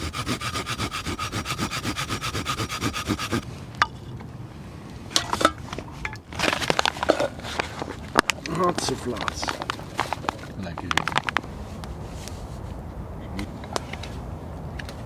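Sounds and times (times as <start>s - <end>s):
hand saw cutting wood: 0.0s - 3.5s
clicks and scrapes of handling wood: 5.1s - 12.6s.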